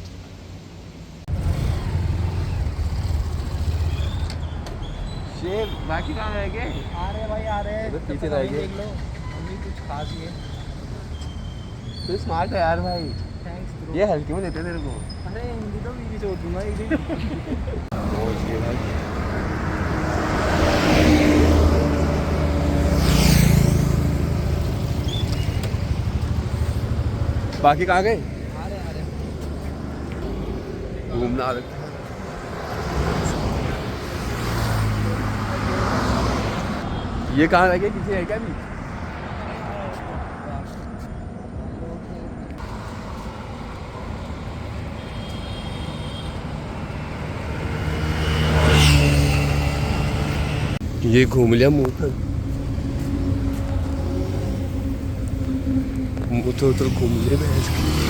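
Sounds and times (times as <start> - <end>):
road noise: 0.0 - 58.0
vehicle engines running: 1.3 - 11.4, 14.2 - 39.4, 42.4 - 58.0
vehicle passing close by: 17.9 - 36.8, 46.4 - 58.0.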